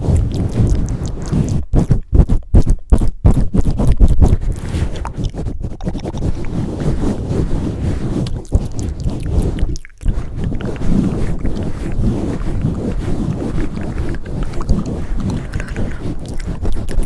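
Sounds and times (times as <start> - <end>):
hands rubbing microphone: 0.0 - 17.0.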